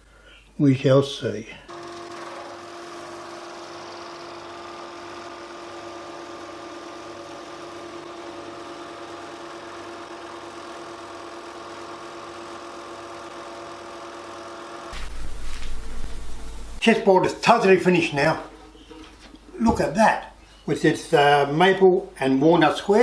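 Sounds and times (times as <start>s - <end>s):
machine motor humming: 1.7s - 16.8s.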